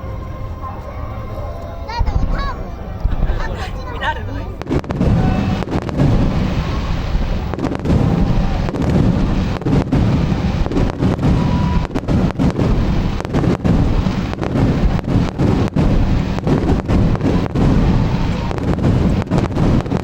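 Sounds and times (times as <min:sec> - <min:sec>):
fireworks booming: 0:00.0 - 0:20.0.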